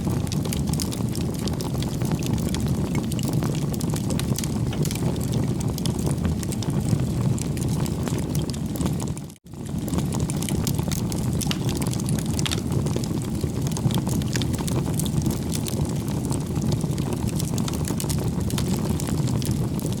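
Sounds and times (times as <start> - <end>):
bonfire flames rushing: 0.0 - 20.0
burning wood crackling and popping: 0.0 - 20.0.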